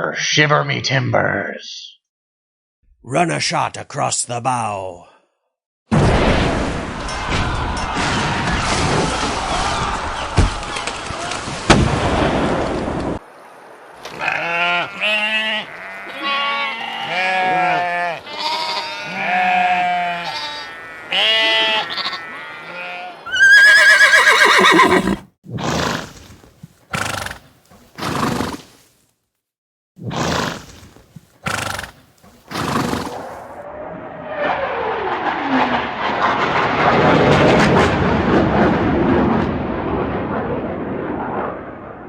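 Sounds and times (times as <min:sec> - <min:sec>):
loud wavering animal cry: 0:19.0 - 0:25.2
animal calls bending in pitch: 0:23.3 - 0:25.2.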